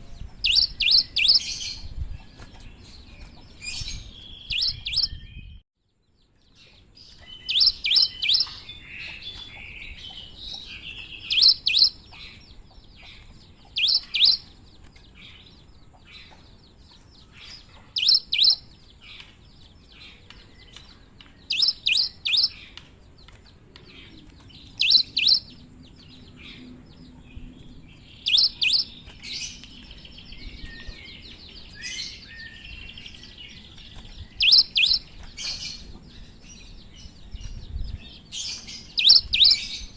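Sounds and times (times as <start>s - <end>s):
soft bird twittering: 0.0s - 39.9s
bird singing sharp high notes: 18.0s - 18.6s, 21.5s - 22.6s.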